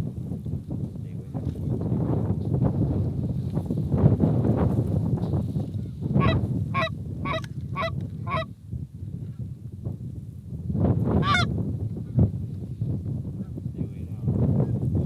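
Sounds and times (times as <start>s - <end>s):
geese honking: 6.2s - 8.5s, 11.2s - 11.5s.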